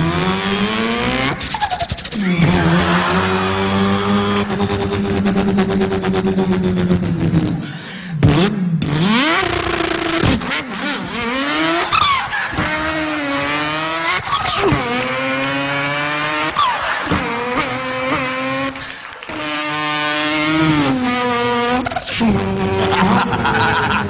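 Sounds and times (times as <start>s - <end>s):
man imitating racing car engine: 0.0s - 24.0s.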